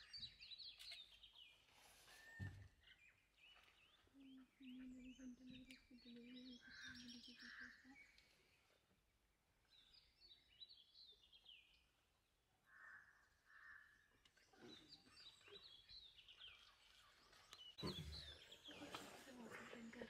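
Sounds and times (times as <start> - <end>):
bird chirps and calls: 0.0 - 8.8.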